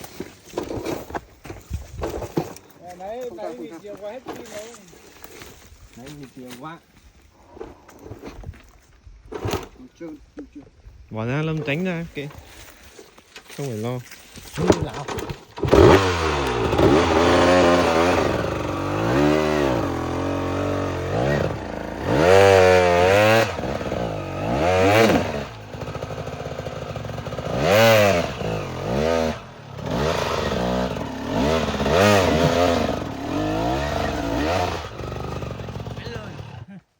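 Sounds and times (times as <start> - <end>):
dirt bike engine revving: 14.6 - 36.8.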